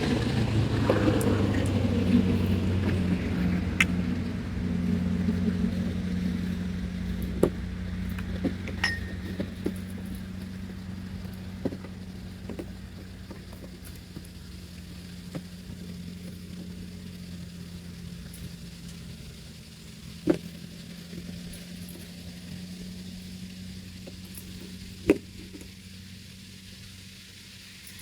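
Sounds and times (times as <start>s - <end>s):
motor engine humming: 0.0s - 28.0s
rigging hardware clinking: 1.5s - 15.8s.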